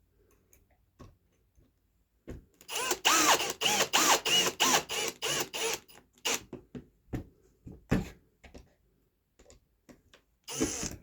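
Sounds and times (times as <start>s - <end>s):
drill driving screws into wood: 2.7s - 6.5s, 10.5s - 11.0s.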